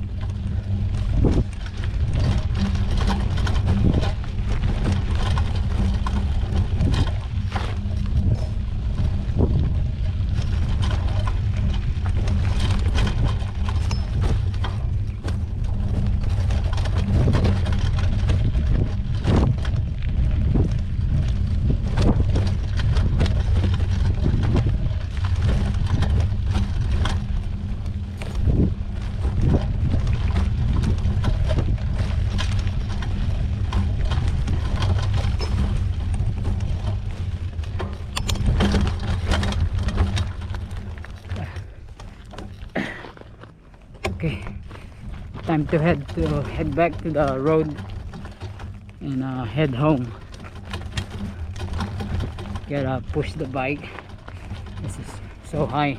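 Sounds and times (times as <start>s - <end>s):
bike clicks and rattles: 0.0s - 55.9s
wind and ride vibration rumble: 0.0s - 55.9s.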